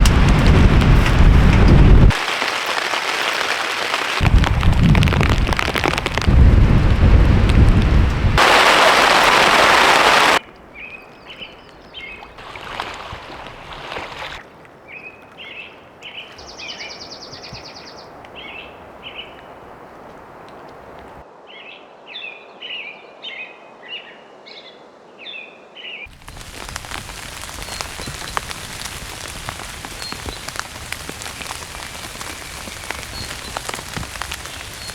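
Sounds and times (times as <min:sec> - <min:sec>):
heavy rain: 0:00.0 - 0:10.5, 0:12.4 - 0:14.4, 0:26.1 - 0:34.9
rain pattering on a surface: 0:00.0 - 0:14.4, 0:16.3 - 0:21.2, 0:26.1 - 0:34.9
storm wind: 0:00.0 - 0:14.4, 0:26.1 - 0:34.9
birds chirping: 0:08.4 - 0:21.7, 0:25.3 - 0:34.9.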